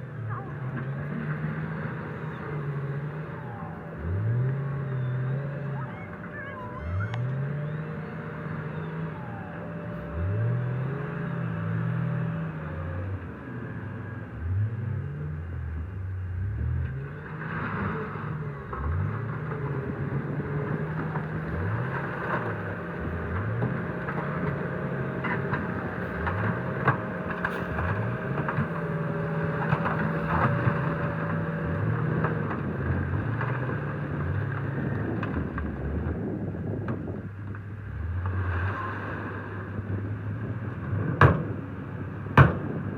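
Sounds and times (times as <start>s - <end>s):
heavy machinery engine running: 0.0s - 42.9s
knocks and clatter: 18.7s - 36.2s, 40.7s - 42.9s.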